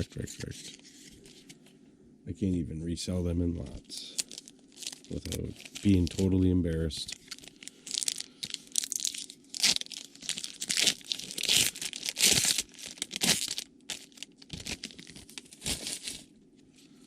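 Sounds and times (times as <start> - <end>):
wrapper tearing and crinkling: 4.0 - 16.3.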